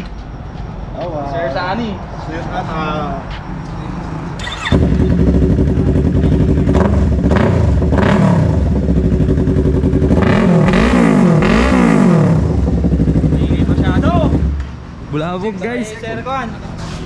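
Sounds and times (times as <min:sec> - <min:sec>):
motorcycle engine throttle blips: 0:04.4 - 0:14.7
motorcycle engine idling: 0:04.5 - 0:10.8, 0:12.2 - 0:14.6.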